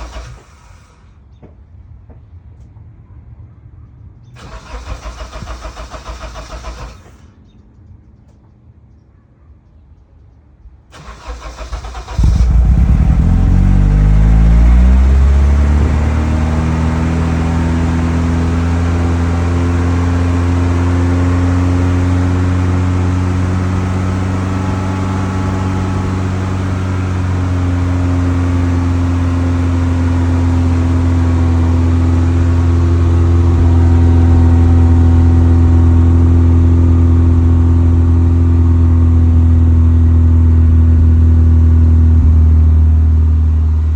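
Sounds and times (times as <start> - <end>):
starter motor cranking: 0.0 - 0.8, 4.4 - 7.2, 11.0 - 14.0
car engine starting and idling: 0.0 - 1.2, 4.4 - 7.4, 10.9 - 43.9.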